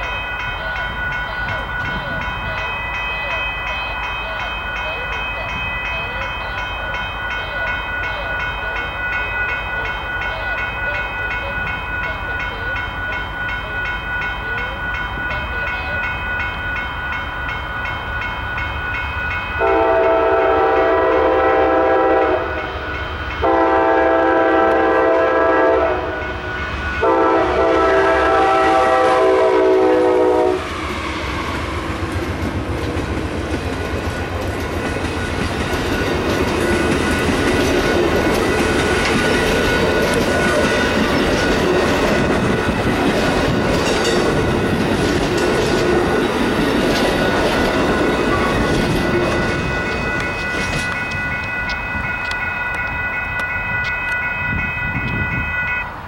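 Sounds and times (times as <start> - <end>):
crossing bell dinging: 0.0 - 56.0
locomotive air horn blasts: 19.6 - 22.7, 23.4 - 26.4, 27.0 - 30.8
train wheels clattering: 26.7 - 55.3.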